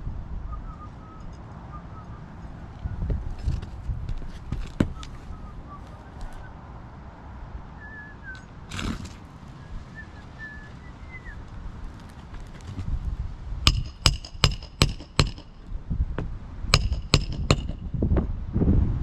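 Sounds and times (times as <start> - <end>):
hammer striking roofing nails: 13.7 - 15.6, 16.7 - 17.9.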